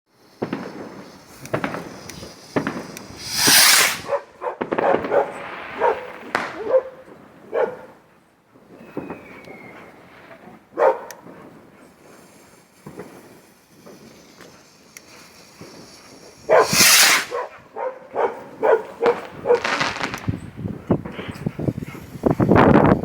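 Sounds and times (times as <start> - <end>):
dog barking: 4.0 - 8.0, 10.8 - 11.2, 16.5 - 19.7.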